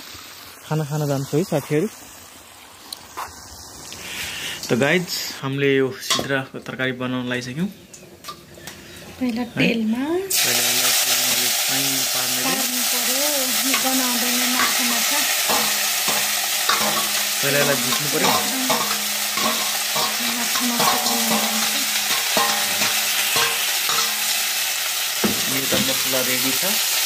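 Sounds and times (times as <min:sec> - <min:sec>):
fish sizzling in hot oil: 0:00.0 - 0:06.1, 0:08.0 - 0:27.0
metal spatula scraping pan: 0:13.7 - 0:24.6.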